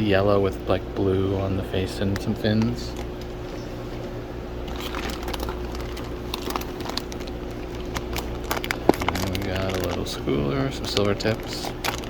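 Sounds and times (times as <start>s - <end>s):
steady low hum: 0.0s - 12.0s
plastic bags rustling: 2.4s - 12.0s.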